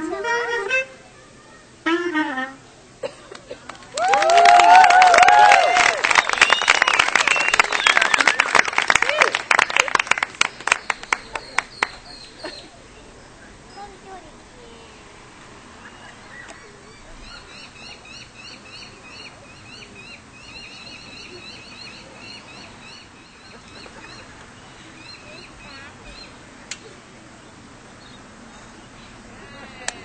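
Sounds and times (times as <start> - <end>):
outdoor background noise: 0.0 - 30.0
bird chirping: 10.5 - 14.0, 15.8 - 26.4, 27.4 - 29.2.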